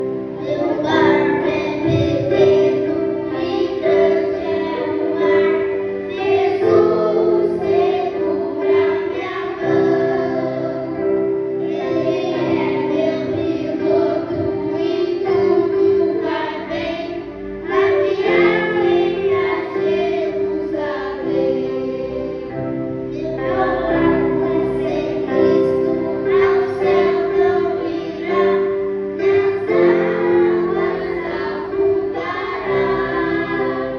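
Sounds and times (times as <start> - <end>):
children singing: 0.0 - 33.9
music: 0.0 - 33.9.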